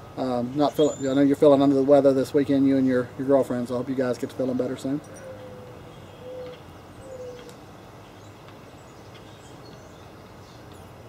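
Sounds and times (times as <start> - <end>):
outdoor background noise: 0.0 - 11.0
low falling bird calls: 4.3 - 11.0.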